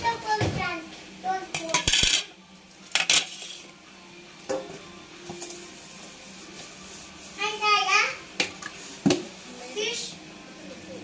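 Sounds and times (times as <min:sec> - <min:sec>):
kitchen utensils clattering: 0:01.5 - 0:03.6.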